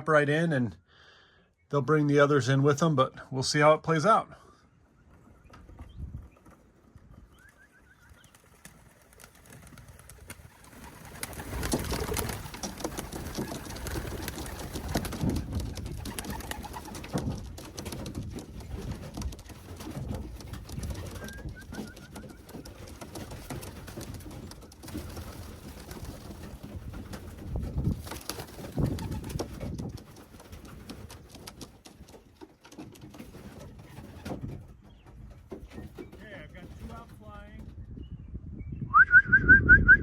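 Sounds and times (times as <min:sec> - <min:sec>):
wings fluttering and scuffling: 0:04.9 - 0:38.0.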